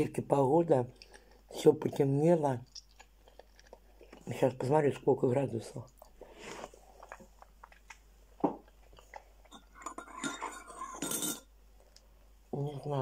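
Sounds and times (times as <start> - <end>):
person chewing food: 0.9 - 4.7, 5.8 - 11.0
wet mouth clicks: 2.6 - 4.3.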